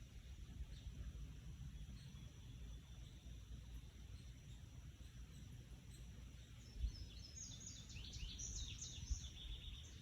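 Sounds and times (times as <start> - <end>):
faint bird chirp: 0.1 - 10.0
wind rumble on microphone: 6.6 - 10.0.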